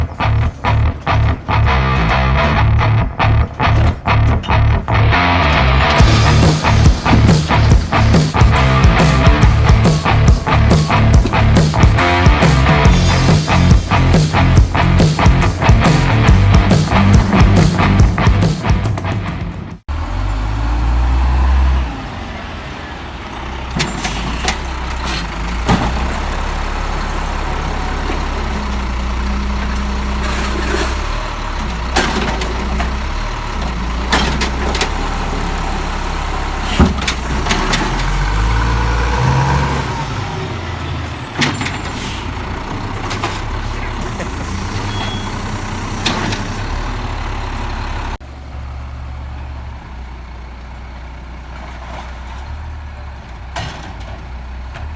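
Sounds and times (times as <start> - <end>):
sharp metallic knocks and bangs: 0.0 - 19.8, 23.6 - 47.3
diesel truck engine revving: 0.0 - 54.9.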